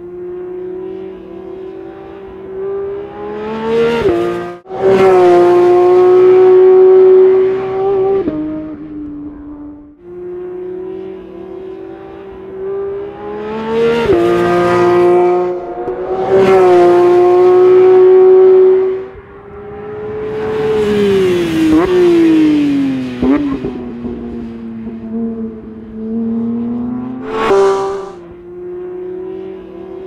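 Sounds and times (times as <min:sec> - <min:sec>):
car engine revving hard: 0:27.2 - 0:28.2.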